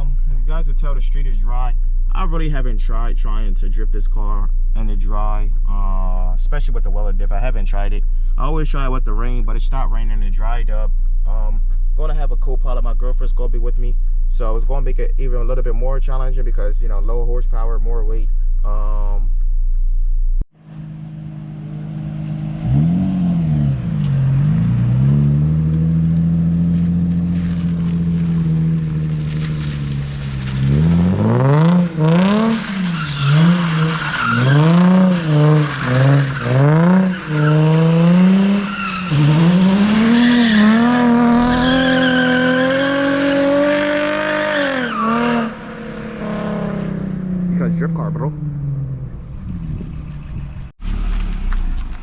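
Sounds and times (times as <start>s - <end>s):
car engine revving: 20.6s - 52.0s
tires squealing: 21.7s - 52.0s.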